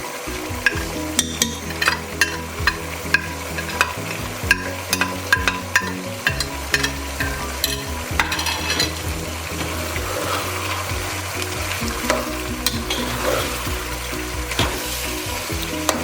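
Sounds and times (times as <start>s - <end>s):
chicken sizzling in a pot: 0.0s - 16.0s
spoon clicking against pot: 0.7s - 9.0s.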